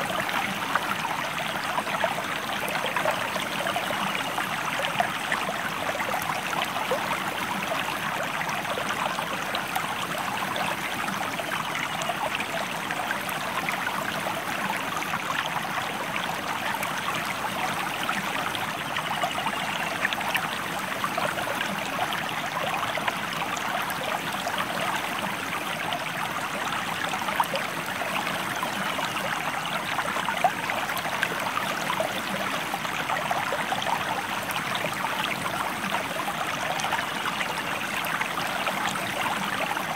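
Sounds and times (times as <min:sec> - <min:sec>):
water flowing over rocks: 0:00.0 - 0:39.9.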